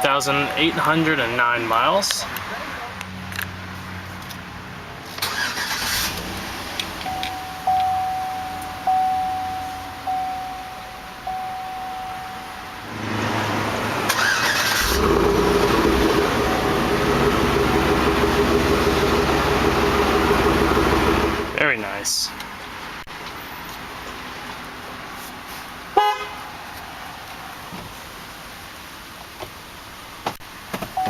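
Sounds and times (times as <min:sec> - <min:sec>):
dashboard chimes: 0:00.0 - 0:01.8, 0:07.0 - 0:12.9
engine cranking and idling: 0:05.1 - 0:10.4, 0:13.0 - 0:21.6.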